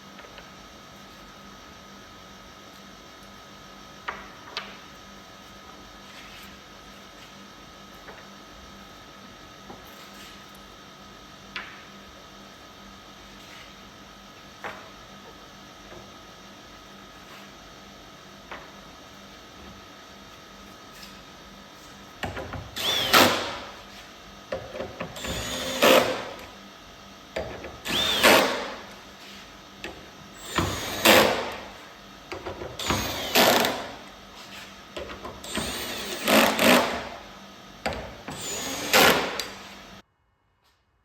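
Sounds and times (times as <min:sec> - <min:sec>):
small power tool running: 0:22.2 - 0:40.0.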